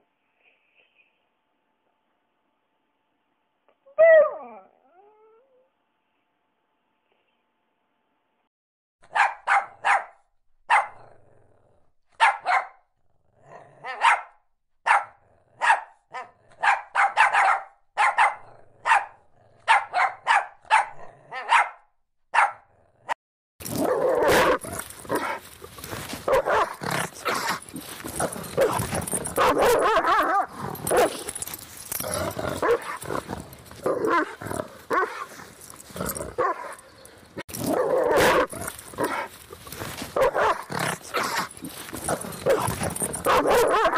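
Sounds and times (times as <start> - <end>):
dog barking: 9.1 - 11.0, 12.2 - 12.8, 13.8 - 22.7, 24.2 - 25.4, 26.3 - 31.3, 32.6 - 33.0, 34.0 - 35.4, 37.8 - 39.3, 40.2 - 41.5, 42.1 - 43.9
dog growling: 13.3 - 14.0, 22.7 - 43.9.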